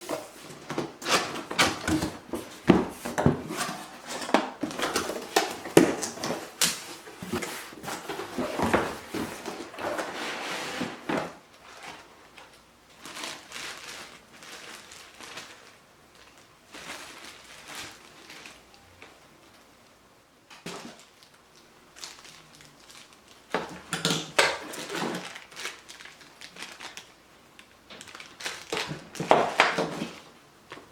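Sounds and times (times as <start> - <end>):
objects being handled: 0.0 - 15.5.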